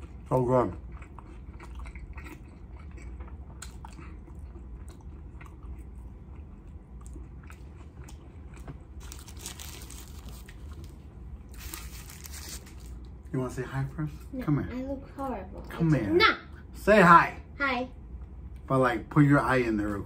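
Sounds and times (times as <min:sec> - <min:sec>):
chewing with mouth clicks: 0:00.0 - 0:11.0
paper wrapper crinkling: 0:09.0 - 0:13.1.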